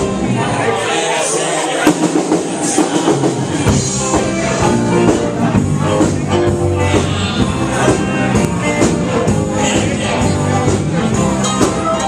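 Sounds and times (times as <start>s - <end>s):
live rockabilly band: 0.0s - 12.0s
deep bass notes: 3.2s - 12.0s.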